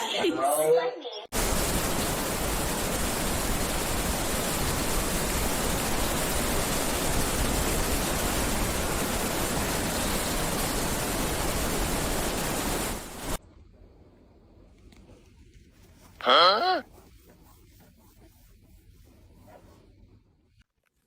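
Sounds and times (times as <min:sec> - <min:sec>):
loud rushing hiss: 0:01.3 - 0:13.4.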